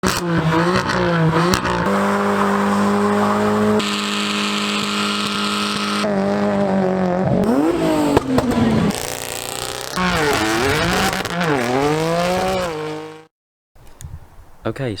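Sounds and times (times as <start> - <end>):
car engine revving high: 0.0 - 13.3
tyres squealing: 7.5 - 12.9.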